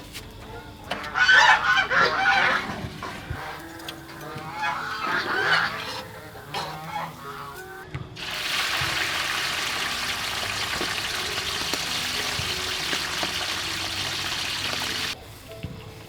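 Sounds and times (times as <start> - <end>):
water running: 8.2 - 15.2.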